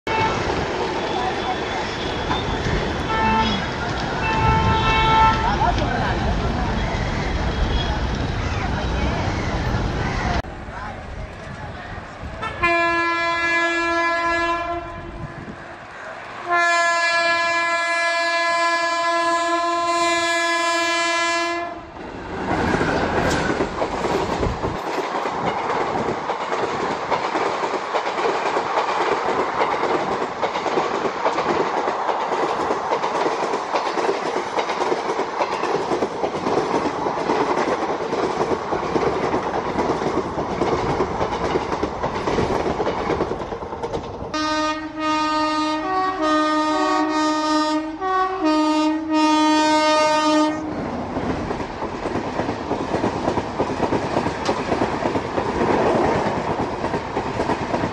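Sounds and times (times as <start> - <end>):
train horn blasts: 0.1 - 0.4, 3.1 - 5.6, 12.4 - 15.3, 16.4 - 21.9, 44.4 - 50.7
train wheels clattering: 22.4 - 44.7, 50.9 - 57.9.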